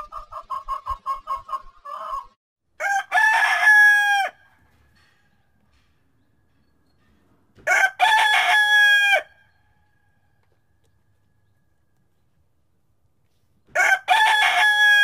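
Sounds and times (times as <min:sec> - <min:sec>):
rooster clucking: 0:00.0 - 0:02.4
rooster crowing: 0:01.9 - 0:04.4, 0:07.7 - 0:09.3, 0:13.8 - 0:15.0.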